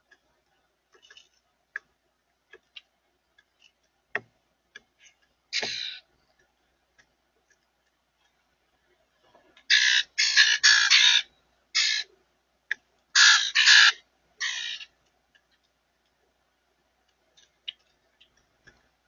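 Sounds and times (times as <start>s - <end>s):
birds tapping and clicking: 0.0s - 8.6s, 12.7s - 16.4s, 17.0s - 19.0s
harsh bird call: 9.7s - 12.1s, 13.2s - 14.9s.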